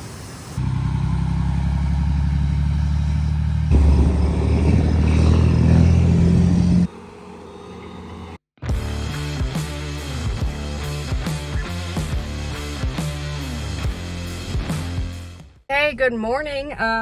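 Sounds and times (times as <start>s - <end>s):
farm machinery engine running: 0.6s - 8.4s.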